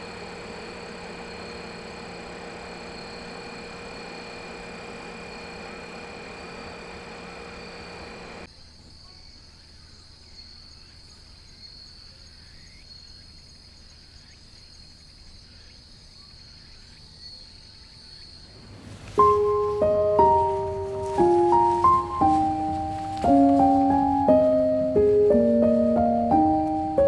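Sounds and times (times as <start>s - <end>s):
piano music: 0.0s - 8.5s, 18.6s - 27.0s
insects chirring: 0.0s - 27.0s
rumbling hum: 18.5s - 27.0s.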